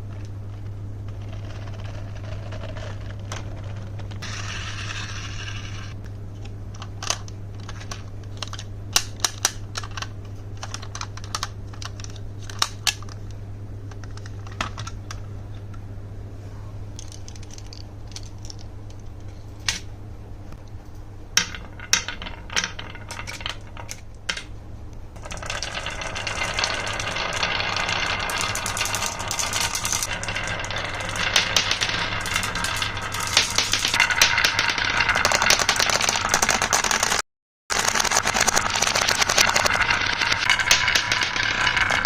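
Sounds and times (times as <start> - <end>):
marbles clattering down wooden run: 21.4 - 24.4, 25.2 - 42.0.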